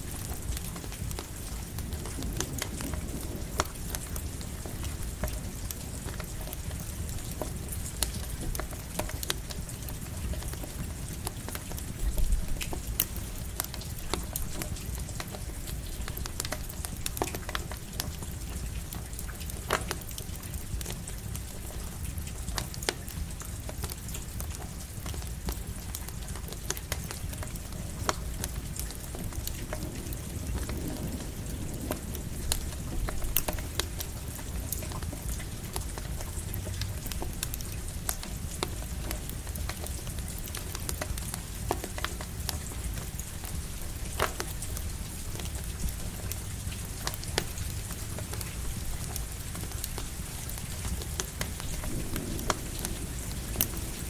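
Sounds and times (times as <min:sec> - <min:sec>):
campfire crackling and popping: 0:00.0 - 0:54.0
rain hiss: 0:00.0 - 0:54.0
steady low rumble: 0:51.8 - 0:54.0.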